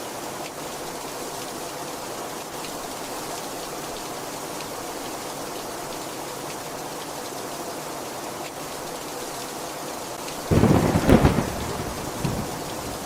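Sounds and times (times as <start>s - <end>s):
heavy rain falling: 0.0s - 13.0s
raindrop ticks: 2.4s - 6.6s, 10.2s - 13.0s.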